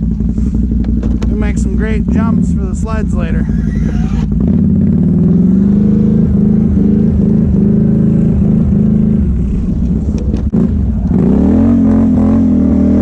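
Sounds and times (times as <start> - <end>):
atv engine running hard: 0.0 - 13.0
plow blade pushing snow: 0.2 - 10.4.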